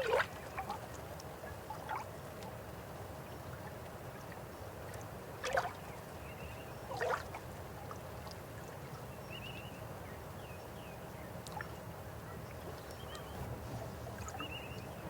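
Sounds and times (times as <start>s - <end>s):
water splashing gurgles: 0.0s - 1.0s, 5.4s - 5.8s, 6.9s - 7.4s
river water flowing: 0.0s - 15.0s.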